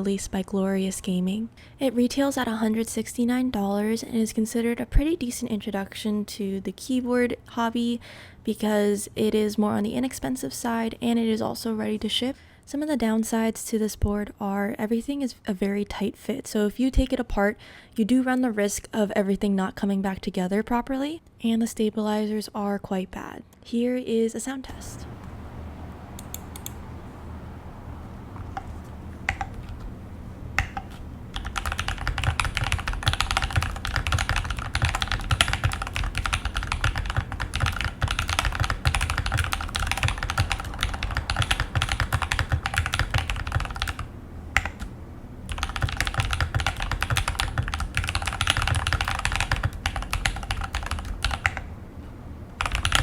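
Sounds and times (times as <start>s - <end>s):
typing on mechanical keyboard: 30.6s - 44.9s, 45.5s - 51.7s, 52.6s - 53.0s.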